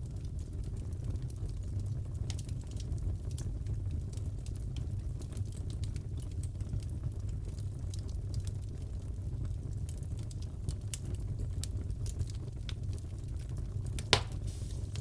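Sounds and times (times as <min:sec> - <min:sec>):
fire popping: 0:01.4 - 0:15.0
fireplace crackling: 0:07.2 - 0:15.0.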